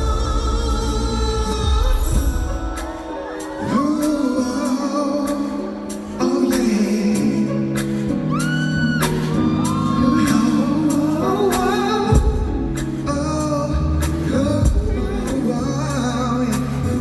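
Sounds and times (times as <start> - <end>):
bass notes: 0.0 - 2.6, 7.3 - 17.0
steady drum beat: 0.0 - 7.2, 7.8 - 17.0
man singing: 0.0 - 17.0.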